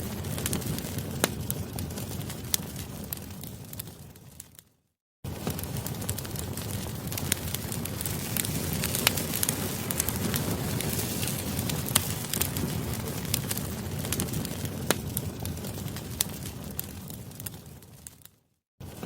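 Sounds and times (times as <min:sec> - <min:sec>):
flames rumbling: 0:00.0 - 0:04.6, 0:05.2 - 0:19.0
campfire crackling and popping: 0:00.0 - 0:04.7, 0:05.3 - 0:19.0.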